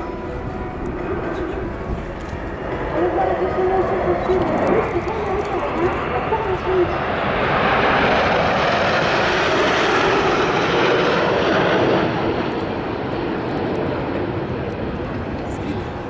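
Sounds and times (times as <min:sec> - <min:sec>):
jets flying past: 0:00.9 - 0:16.0.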